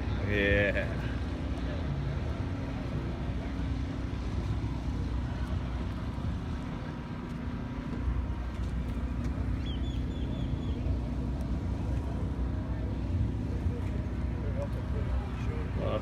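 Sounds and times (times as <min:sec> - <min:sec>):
car engines rumbling: 0:00.0 - 0:16.0.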